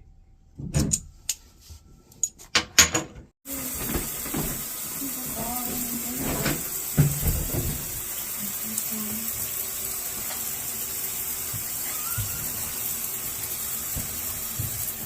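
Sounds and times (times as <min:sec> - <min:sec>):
water running from faucet: 0:03.5 - 0:15.0
pipe knocks: 0:05.6 - 0:08.1.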